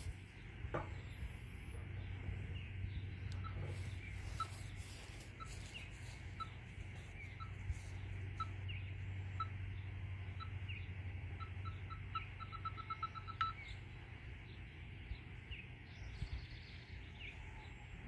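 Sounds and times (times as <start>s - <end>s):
steady low hum: 0.0s - 18.0s
bird scolding chip notes: 3.3s - 14.2s.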